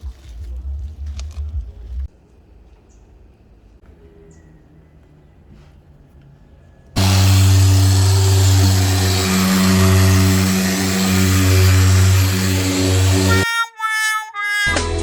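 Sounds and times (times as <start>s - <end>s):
loud motor humming and hissing: 7.0s - 13.4s.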